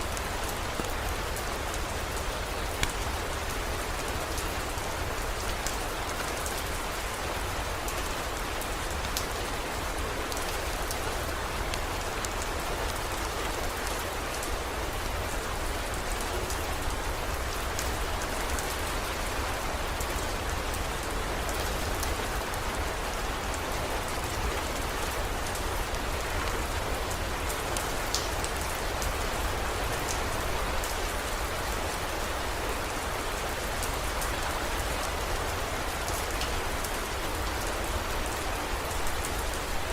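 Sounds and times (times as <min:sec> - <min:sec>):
heavy rain falling: 0:00.0 - 0:39.9
raindrop ticks: 0:02.7 - 0:03.1, 0:28.1 - 0:28.6.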